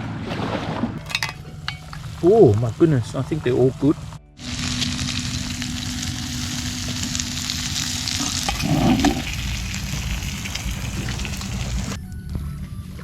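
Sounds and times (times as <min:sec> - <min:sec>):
food sizzling in a pan: 0:04.4 - 0:12.0.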